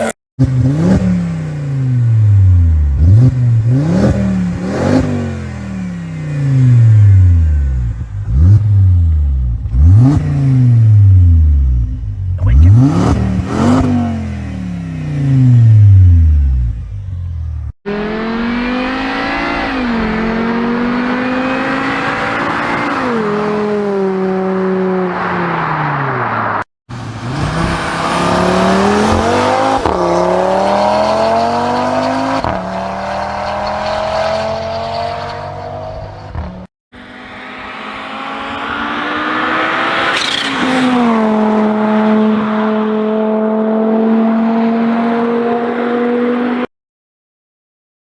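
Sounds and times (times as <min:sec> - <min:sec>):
car engine accelerating hard: 0:26.5 - 0:46.7.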